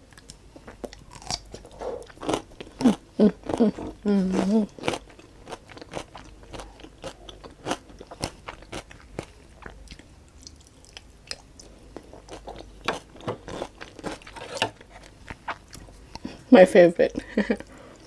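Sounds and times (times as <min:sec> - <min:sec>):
chewing with sharp mouth clicks: 0:04.7 - 0:14.3
wooden fork scraping a tray: 0:14.2 - 0:14.8.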